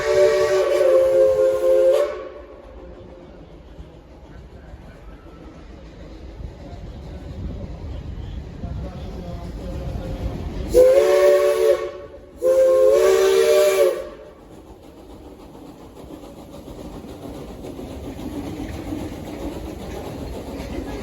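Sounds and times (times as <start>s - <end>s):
steam locomotive whistle: 0.0s - 3.0s, 10.7s - 14.4s
train running along track: 0.0s - 21.0s.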